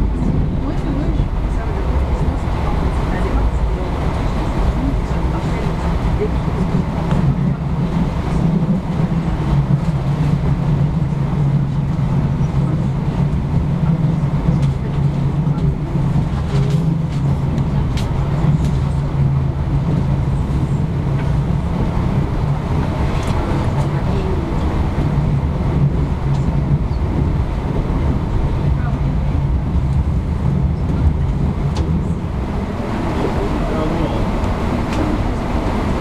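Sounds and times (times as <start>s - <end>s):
train rumbling inside passenger car: 0.0s - 36.0s.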